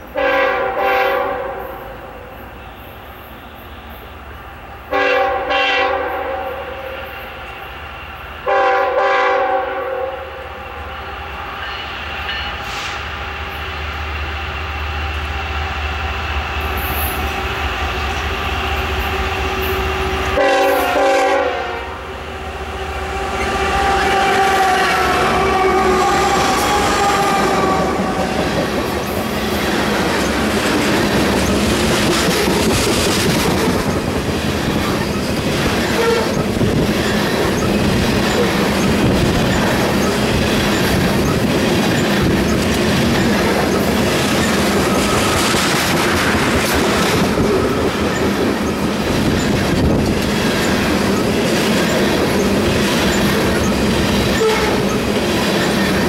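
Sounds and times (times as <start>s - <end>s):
train wheels rumbling on rails: 0.0s - 56.0s
wheels clicking over rail joints: 26.3s - 56.0s.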